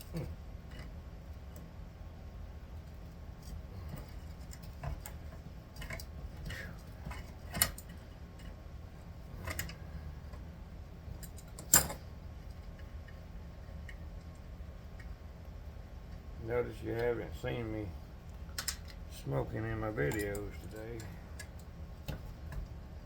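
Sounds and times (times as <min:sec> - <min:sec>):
metal parts clicking and clinking: 0:11.2 - 0:12.0, 0:20.0 - 0:21.7.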